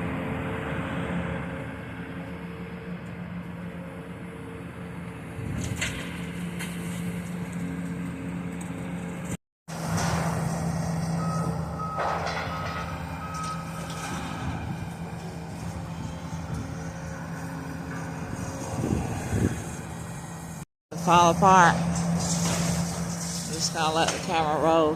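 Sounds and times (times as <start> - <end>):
diesel machinery humming: 0.0 - 24.9
backup alarm beeping: 11.2 - 14.0.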